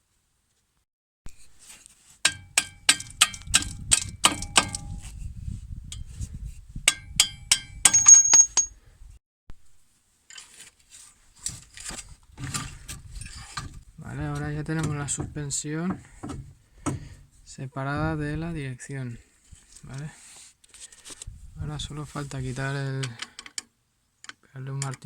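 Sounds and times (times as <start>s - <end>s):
hammer clanging on steel: 7.2s - 8.7s.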